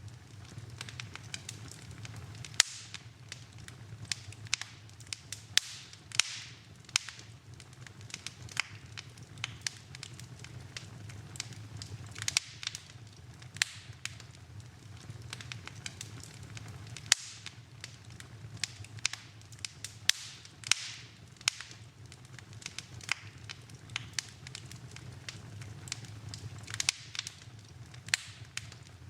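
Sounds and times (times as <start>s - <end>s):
wood fire crackling: 0.0s - 29.0s.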